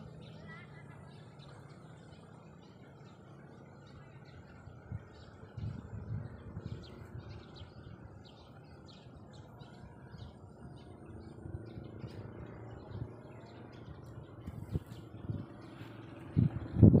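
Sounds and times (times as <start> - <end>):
small birds chirping: 0.0 - 17.0
steady low rumble: 4.0 - 17.0.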